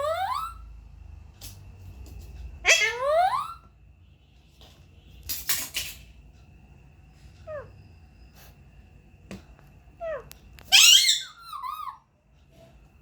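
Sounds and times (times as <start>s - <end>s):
parakeet calling: 0.0s - 0.7s, 2.6s - 3.7s, 10.0s - 12.1s.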